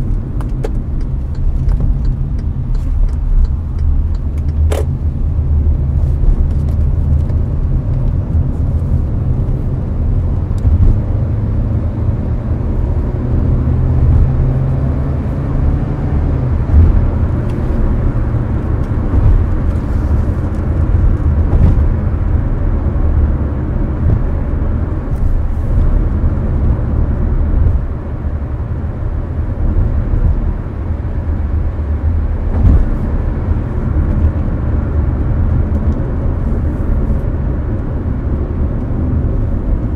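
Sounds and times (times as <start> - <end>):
car cabin road and engine rumble: 0.0 - 39.9.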